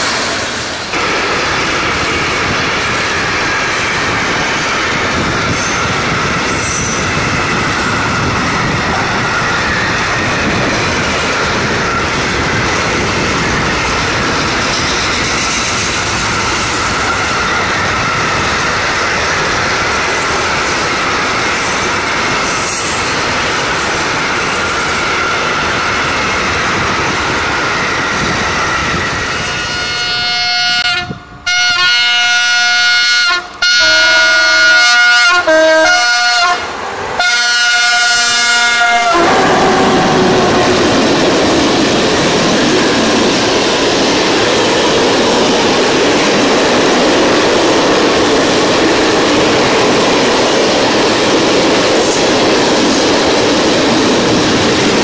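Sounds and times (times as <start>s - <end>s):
train wheels rushing on rail: 0.0s - 55.0s
train horn blasts: 29.6s - 40.8s.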